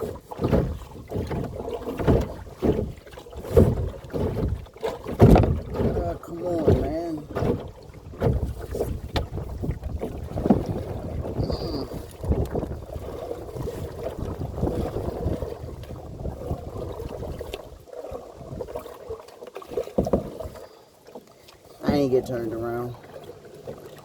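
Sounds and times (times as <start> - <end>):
wind rumbling on microphone: 0.0 - 18.9
paddle strokes in water: 0.0 - 24.0
sharp knocks: 0.5 - 6.0.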